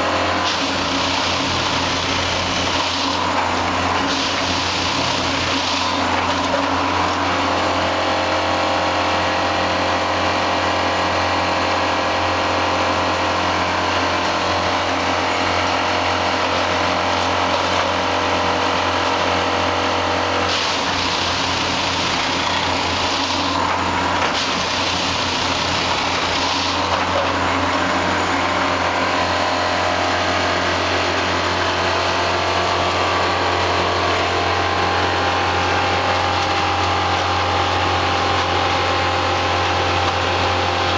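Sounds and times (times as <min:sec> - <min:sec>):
machine engine humming: 0:11.2 - 0:40.9.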